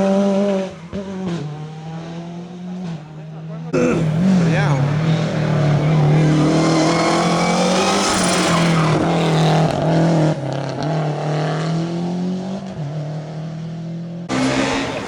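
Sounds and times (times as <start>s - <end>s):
rally car engine at high revs: 3.8s - 13.7s, 14.3s - 15.0s.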